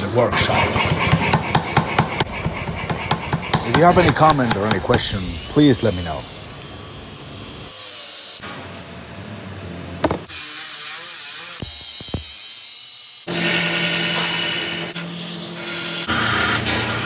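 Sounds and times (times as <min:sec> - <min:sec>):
sharp knocks: 0:10.0 - 0:10.3, 0:11.6 - 0:12.4
power tools cutting steel: 0:10.0 - 0:17.0.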